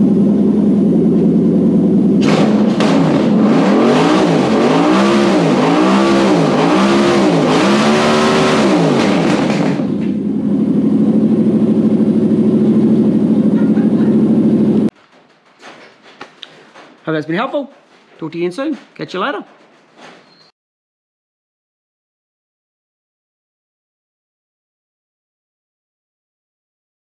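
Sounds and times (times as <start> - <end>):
engine idling: 0.0 - 14.9
engine revving in quick blips: 2.2 - 10.2.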